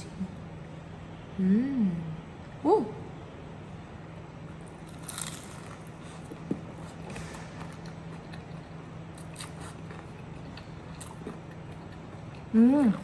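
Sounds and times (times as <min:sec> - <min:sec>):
faint steady hum: 0:00.0 - 0:13.0
biting and chewing pastry: 0:04.6 - 0:13.0.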